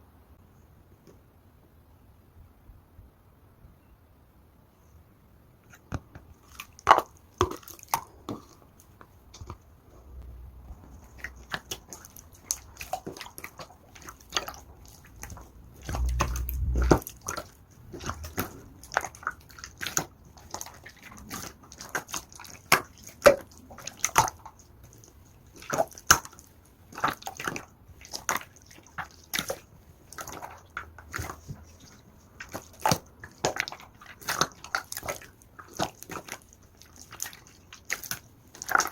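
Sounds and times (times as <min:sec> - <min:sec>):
slime squished by hand: 0:05.7 - 0:38.9
low rumble: 0:09.9 - 0:11.5, 0:14.7 - 0:18.9.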